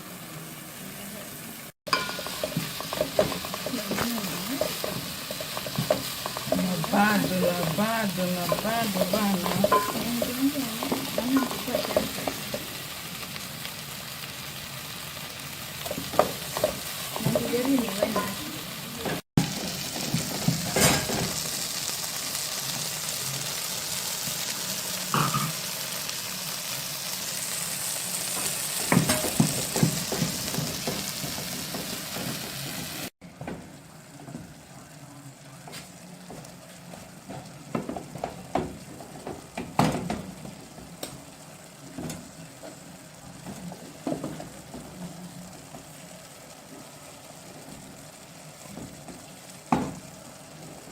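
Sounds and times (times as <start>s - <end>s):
food sizzling in a frying pan: 0.0s - 50.9s.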